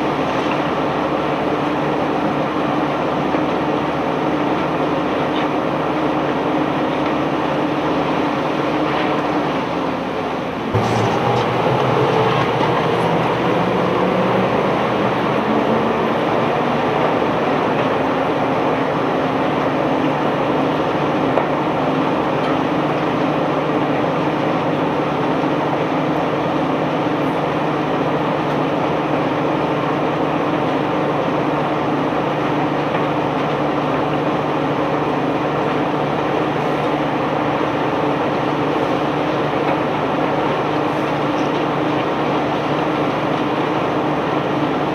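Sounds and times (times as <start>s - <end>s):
heavy diesel machinery rumbling: 0.0s - 44.9s.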